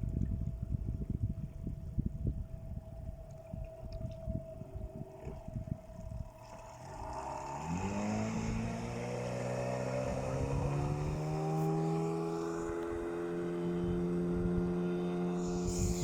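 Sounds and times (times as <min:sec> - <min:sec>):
outboard motor revving: 0:05.2 - 0:16.0.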